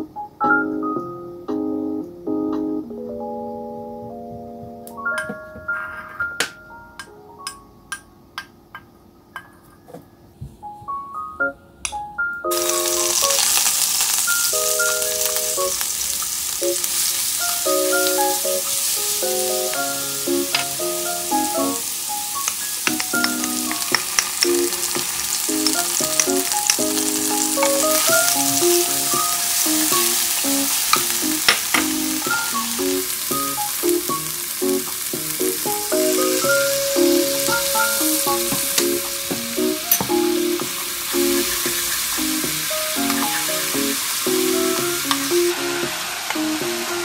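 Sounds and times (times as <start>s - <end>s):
light background music: 10.6s - 15.8s, 16.6s - 47.0s
garlic sizzling in hot oil: 12.5s - 47.0s.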